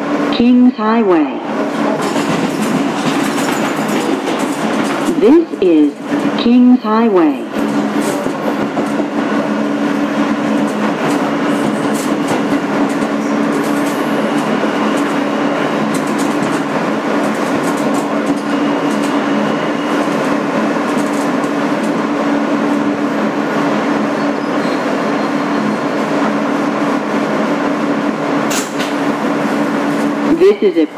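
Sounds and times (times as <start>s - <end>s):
subway car rushing noise: 0.0s - 30.9s.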